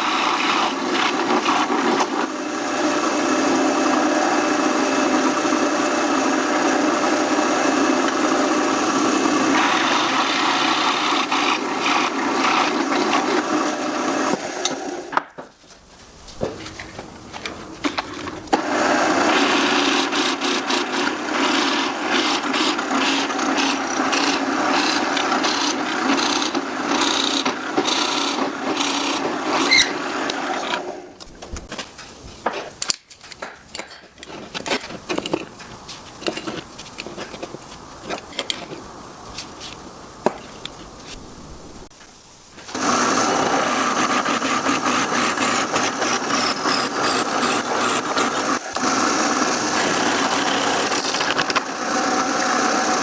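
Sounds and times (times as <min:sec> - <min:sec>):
power tool cutting wood: 0:00.0 - 0:15.2, 0:17.9 - 0:31.2, 0:42.7 - 0:53.0.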